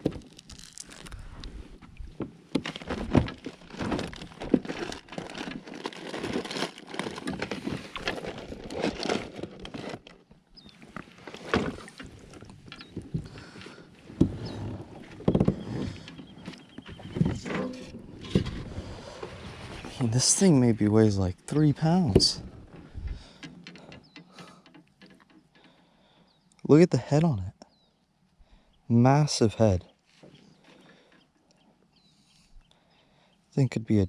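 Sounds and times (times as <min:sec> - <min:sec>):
water and hull noise: 0:00.0 - 0:26.2.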